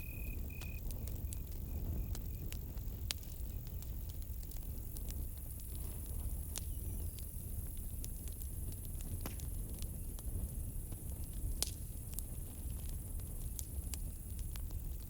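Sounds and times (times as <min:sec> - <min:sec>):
crickets chirring: 0:00.0 - 0:02.6
campfire crackling: 0:00.0 - 0:15.0.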